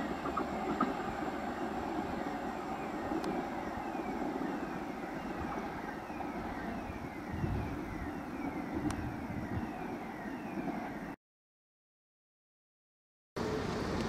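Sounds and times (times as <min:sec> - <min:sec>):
train wheels rumbling and rattling: 0:00.0 - 0:09.6.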